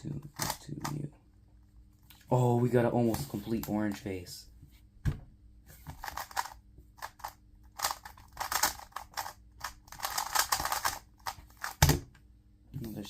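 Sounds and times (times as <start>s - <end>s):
plastic puzzle cube clicking: 6.1s - 12.0s.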